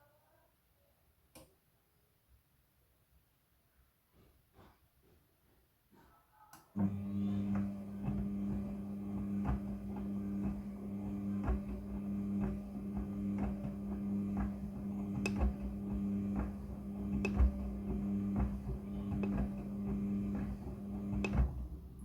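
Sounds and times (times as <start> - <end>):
washing machine motor hum: 6.8 - 22.0.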